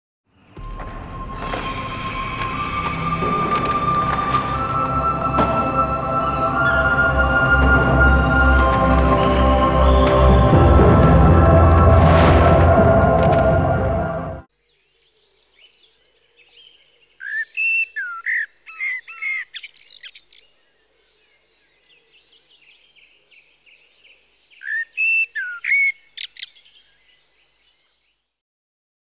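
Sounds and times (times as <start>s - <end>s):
songbird singing: 0.4s - 11.7s, 14.5s - 28.4s
faint bird twittering: 14.6s - 28.1s.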